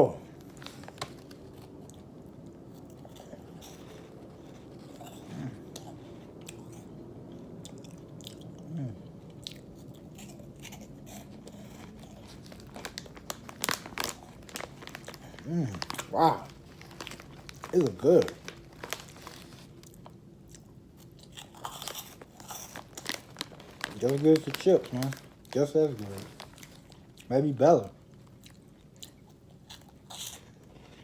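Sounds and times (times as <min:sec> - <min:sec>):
person chewing crunchy snack: 0:00.5 - 0:27.3, 0:28.0 - 0:31.0
person humming mm: 0:08.6 - 0:09.0, 0:15.4 - 0:16.4
sharp crackles: 0:11.7 - 0:20.1, 0:21.4 - 0:27.0.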